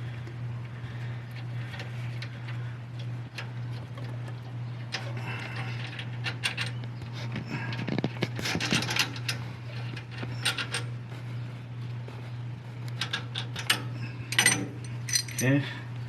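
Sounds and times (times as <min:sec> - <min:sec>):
low hum: 0:00.0 - 0:16.0
steel tools clinking and scraping: 0:13.0 - 0:15.6.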